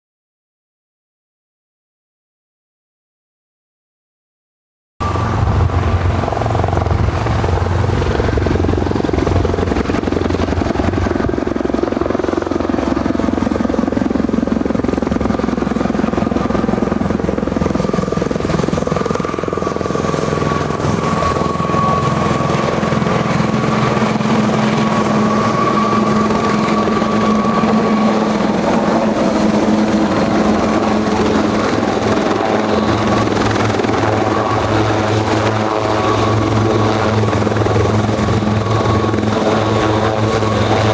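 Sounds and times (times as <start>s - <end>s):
thin high whine: 5.0s - 7.6s
helicopter rotor and engine: 5.0s - 40.9s.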